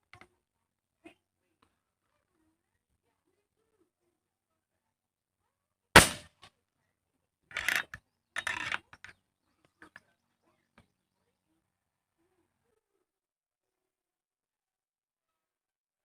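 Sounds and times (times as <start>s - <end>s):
sharp crack: 6.0s - 6.4s.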